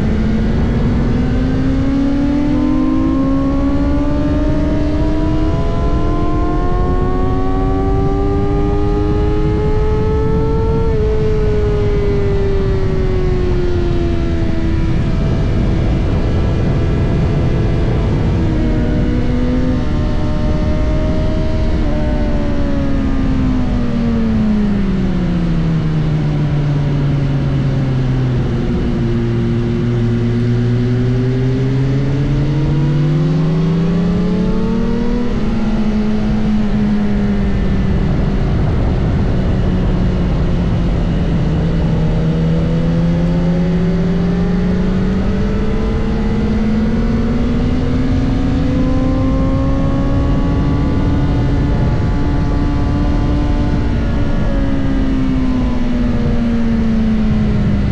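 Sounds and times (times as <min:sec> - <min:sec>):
motorcycle engine revving: 0:00.0 - 0:57.9
wind rush: 0:00.0 - 0:57.9.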